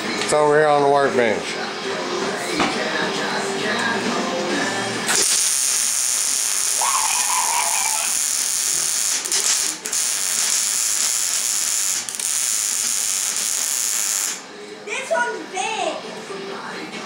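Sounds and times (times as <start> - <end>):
arc welder crackling and hissing: 5.1 - 14.5.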